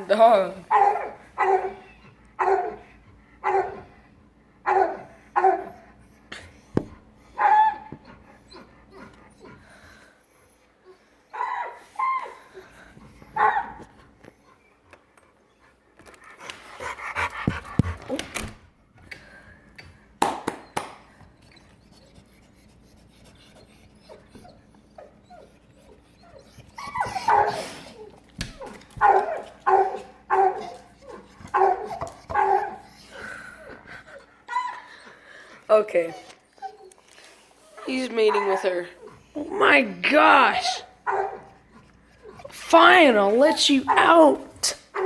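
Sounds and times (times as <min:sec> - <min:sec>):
dog barking: 0:00.7 - 0:01.8, 0:02.4 - 0:02.8, 0:03.4 - 0:03.8, 0:04.6 - 0:05.8, 0:07.4 - 0:07.9, 0:13.4 - 0:13.8, 0:29.0 - 0:30.7, 0:31.5 - 0:32.8, 0:41.0 - 0:41.5
dog whining and yelping: 0:00.7 - 0:03.9, 0:04.6 - 0:09.8, 0:10.4 - 0:14.8, 0:21.4 - 0:42.6, 0:43.9 - 0:45.0.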